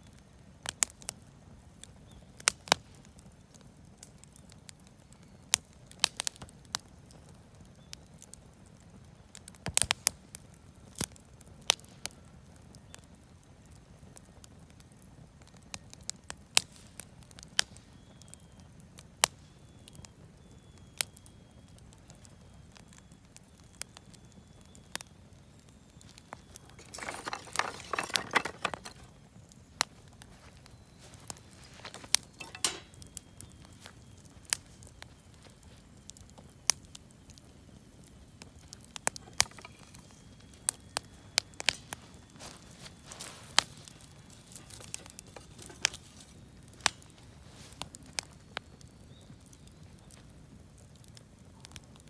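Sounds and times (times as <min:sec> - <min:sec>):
bonfire crackling: 0:00.1 - 0:52.0.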